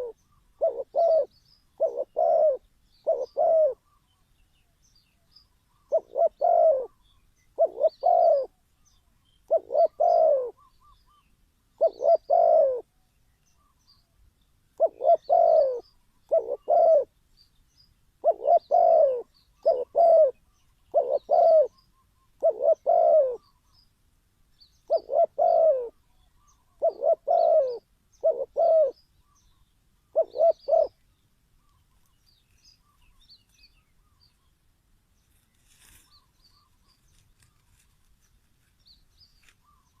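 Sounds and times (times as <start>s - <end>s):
dove cooing: 0.0s - 4.0s, 5.7s - 8.6s, 9.4s - 11.2s, 11.8s - 12.9s, 14.8s - 17.1s, 18.2s - 23.6s, 24.8s - 29.4s, 30.0s - 31.0s.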